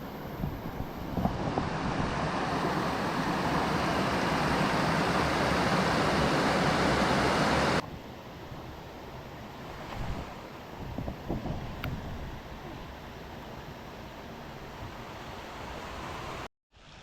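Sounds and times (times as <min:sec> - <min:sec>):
quieter hiss: 0:00.0 - 0:17.0
waterfall roaring: 0:00.8 - 0:07.8.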